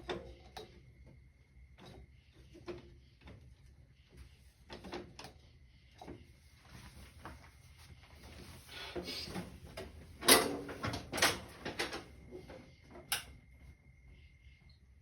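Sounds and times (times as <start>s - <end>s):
tools knocking and clattering: 9.8s - 13.4s.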